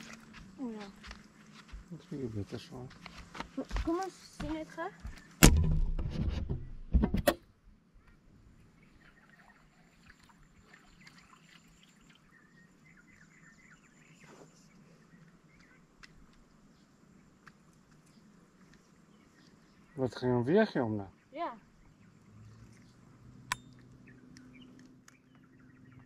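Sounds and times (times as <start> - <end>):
rumbling handling noise: 5.2 - 7.3
sharp knock: 5.4 - 7.4.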